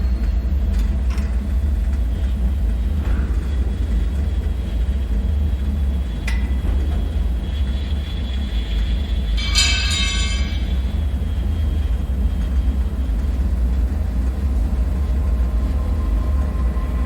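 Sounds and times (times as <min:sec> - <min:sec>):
deep low rumble drone: 0:00.0 - 0:17.0
metallic ringing screech: 0:09.3 - 0:11.0.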